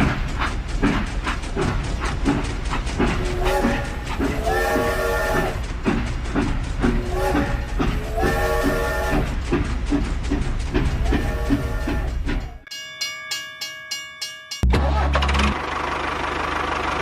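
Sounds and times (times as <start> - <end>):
train wheels clickety-clack: 0.0 - 12.7
multi-tone train horn: 3.4 - 5.6, 7.0 - 9.3, 11.1 - 12.2.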